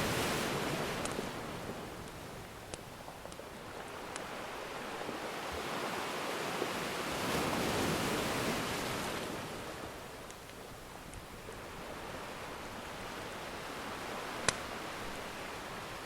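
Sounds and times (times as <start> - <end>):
ocean wave washing: 0.0 - 16.0
faint fire crackles: 0.1 - 5.2, 9.7 - 15.8.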